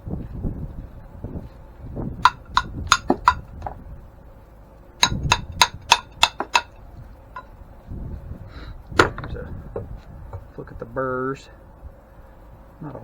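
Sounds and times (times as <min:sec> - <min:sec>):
hammer striking metal: 0:02.2 - 0:03.7, 0:05.0 - 0:06.8.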